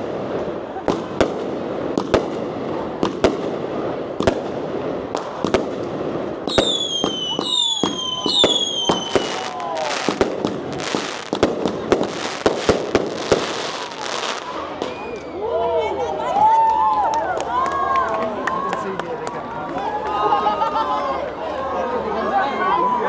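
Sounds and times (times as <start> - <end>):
firework bangs: 0.0 - 15.3
firecrackers crackling: 0.0 - 15.4
whistling fireworks: 0.0 - 15.6.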